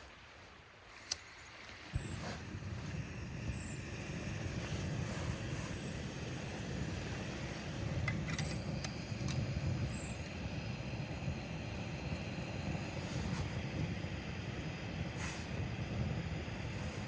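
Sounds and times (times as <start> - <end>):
campfire crackling: 2.0 - 17.0.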